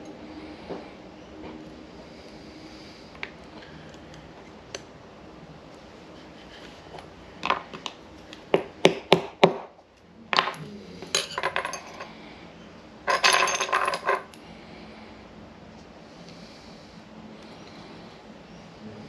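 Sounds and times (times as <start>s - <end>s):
metal hand tools clinking: 10.4s - 12.1s, 13.1s - 14.4s.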